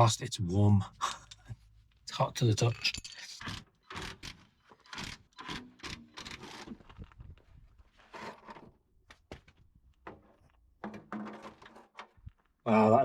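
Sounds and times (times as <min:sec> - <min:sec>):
metal parts clicking and knocking: 0:02.4 - 0:07.1.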